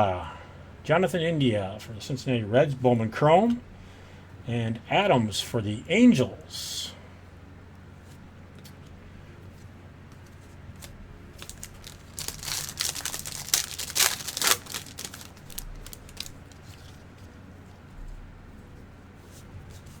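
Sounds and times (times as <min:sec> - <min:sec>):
wrapper tearing and crinkling: 0:11.4 - 0:17.0.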